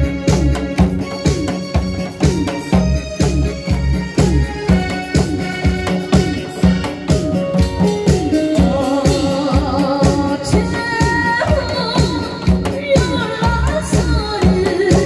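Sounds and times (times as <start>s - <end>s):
steady drum beat: 0.0s - 15.0s
woman singing: 8.4s - 15.0s.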